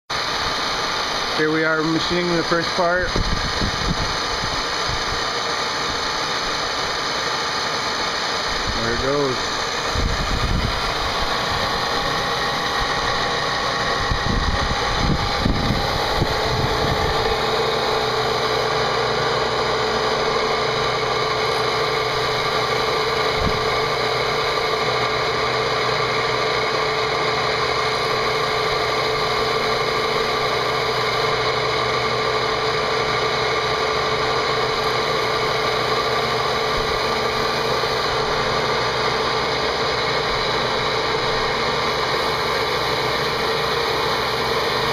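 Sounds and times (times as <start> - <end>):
machine spindle whine: 0.1 - 44.9
uneven low rumbling: 8.6 - 25.5.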